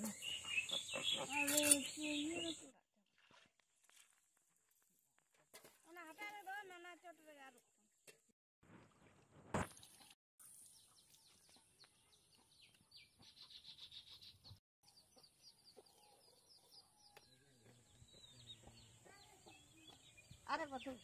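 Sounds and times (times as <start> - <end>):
faint birds chirping: 0.0 - 2.7, 10.5 - 21.0.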